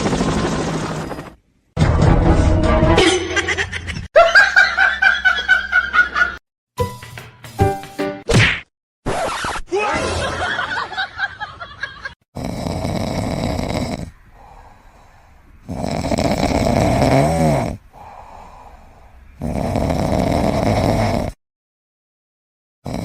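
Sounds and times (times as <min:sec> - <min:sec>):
pet snoring loudly: 0:12.3 - 0:14.6, 0:15.6 - 0:18.7, 0:19.4 - 0:21.4.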